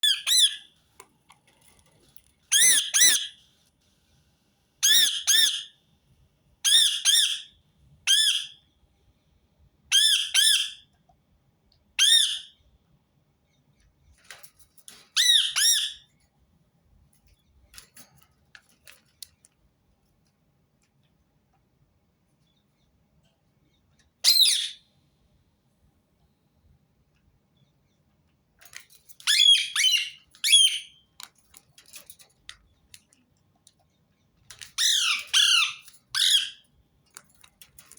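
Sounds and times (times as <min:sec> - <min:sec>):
parakeet screeching calls: 0:00.0 - 0:00.6, 0:02.5 - 0:03.3, 0:04.8 - 0:05.7, 0:06.7 - 0:07.5, 0:10.0 - 0:10.8, 0:12.0 - 0:12.5, 0:15.2 - 0:16.0, 0:24.2 - 0:24.8, 0:29.3 - 0:31.0, 0:34.8 - 0:36.6.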